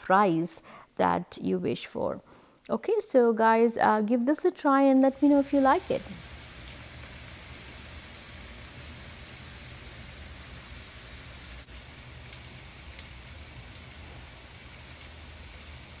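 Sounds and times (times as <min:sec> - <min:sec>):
food sizzling in a pot: 0:04.9 - 0:16.0.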